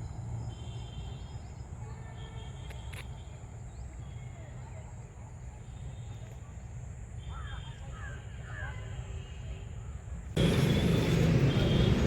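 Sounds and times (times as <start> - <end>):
tractor engine rumbling: 10.4 - 12.0.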